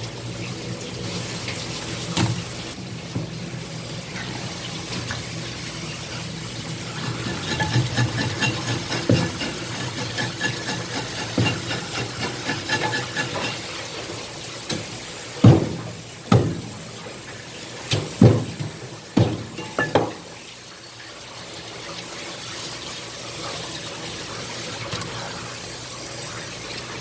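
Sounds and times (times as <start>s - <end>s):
water running in a sink: 0.0s - 27.0s
heavy knocks on cutting board: 15.4s - 16.7s.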